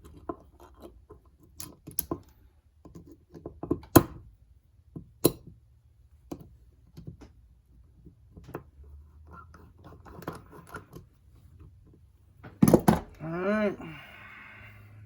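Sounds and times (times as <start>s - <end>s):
hand tool clicking and scraping: 9.3s - 11.1s.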